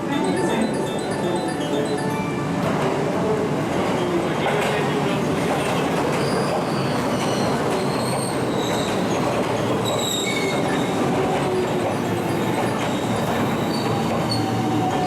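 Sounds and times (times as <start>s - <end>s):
train wheels rumbling on rails: 2.7s - 15.0s
wheels squealing against rails: 6.1s - 11.4s, 12.0s - 15.0s.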